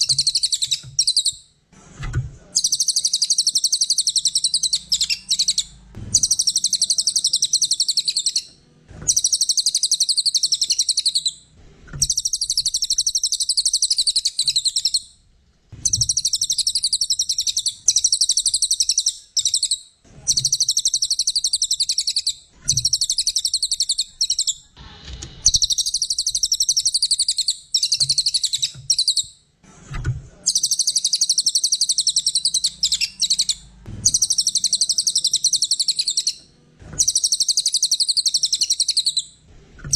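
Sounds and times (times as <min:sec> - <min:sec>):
songbird chattering song: 0:00.0 - 0:01.4, 0:02.6 - 0:08.5, 0:09.1 - 0:11.4, 0:12.0 - 0:15.1, 0:15.8 - 0:24.7, 0:25.4 - 0:29.3, 0:30.5 - 0:36.4, 0:37.0 - 0:39.4.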